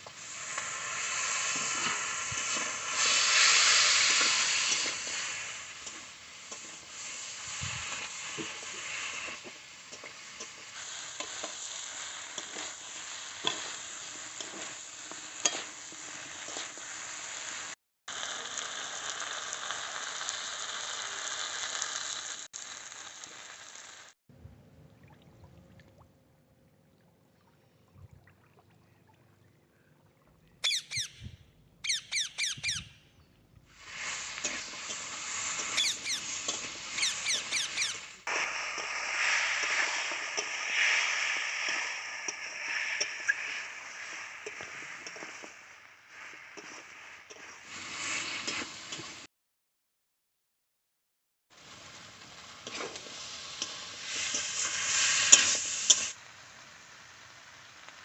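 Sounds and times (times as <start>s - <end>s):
chicken sizzling in hot oil: 0.0s - 24.2s, 33.7s - 49.3s, 51.5s - 58.0s
high chirps: 30.6s - 33.3s, 35.6s - 38.1s.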